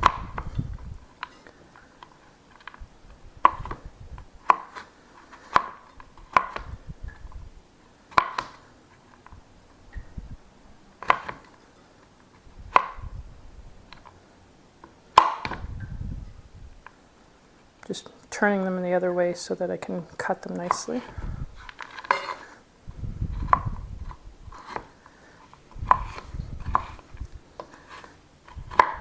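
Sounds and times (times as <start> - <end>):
knife chopping: 0.0 - 0.6, 3.4 - 6.8, 8.1 - 8.7, 11.0 - 11.5, 12.7 - 13.1, 15.1 - 15.7, 23.4 - 23.8, 24.6 - 25.1, 25.8 - 29.0.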